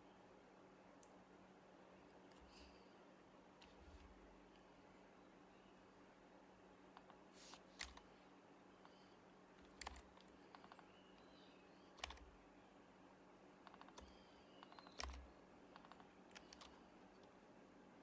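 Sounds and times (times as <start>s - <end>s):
quiet keyboard keystrokes: 6.9s - 8.1s, 8.8s - 12.4s, 13.6s - 17.4s
heavy keystrokes with dull thump: 7.8s - 8.0s, 9.6s - 10.8s, 12.0s - 12.4s, 14.9s - 16.8s.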